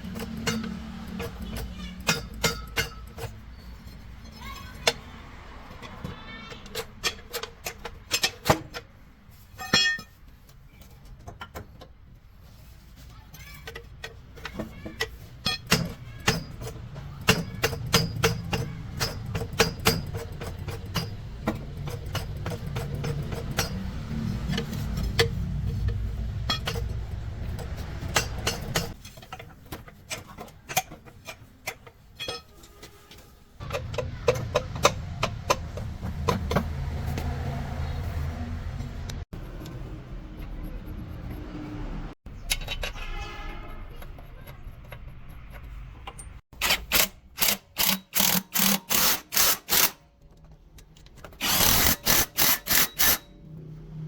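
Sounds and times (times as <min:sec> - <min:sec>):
metal gearbox parts clinking: 0:00.0 - 0:05.0, 0:09.5 - 0:11.9, 0:13.4 - 0:36.6, 0:42.3 - 0:53.5.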